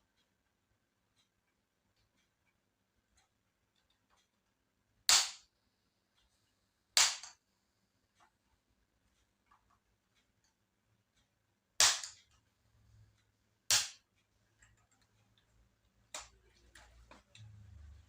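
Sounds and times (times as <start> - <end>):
small plastic ticks and clicks: 0.0 - 5.5, 13.1 - 18.0.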